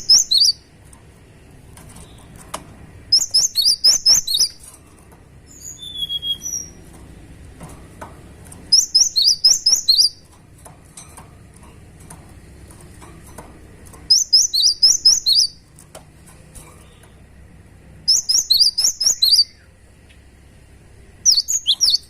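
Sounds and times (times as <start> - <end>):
bird rapid sharp chirping: 0.0 - 0.7, 3.0 - 4.6, 5.5 - 6.9, 8.7 - 10.3, 14.0 - 15.7, 18.0 - 20.2, 21.2 - 22.0.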